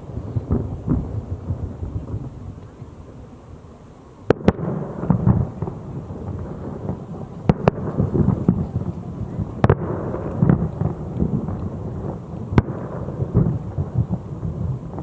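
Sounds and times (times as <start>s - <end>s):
low rolling rumble: 0.0s - 4.2s.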